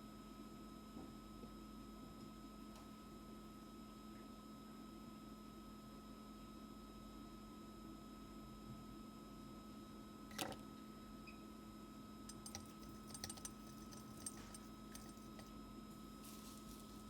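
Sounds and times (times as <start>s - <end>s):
faint electrical hum: 8.3s - 17.0s
small tools ticking: 12.3s - 15.5s.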